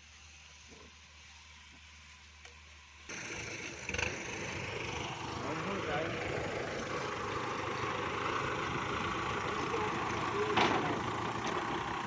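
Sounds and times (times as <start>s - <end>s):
diesel tractor engine idling: 3.1s - 12.0s.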